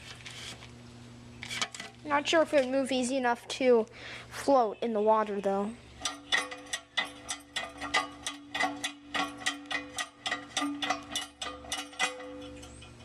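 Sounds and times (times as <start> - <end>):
steady ringing tone: 5.8 - 13.0.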